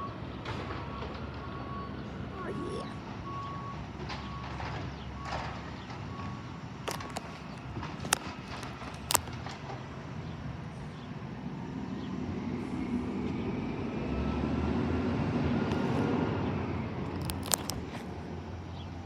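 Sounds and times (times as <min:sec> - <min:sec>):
truck engine rumbling: 0:02.0 - 0:10.6, 0:15.4 - 0:19.0.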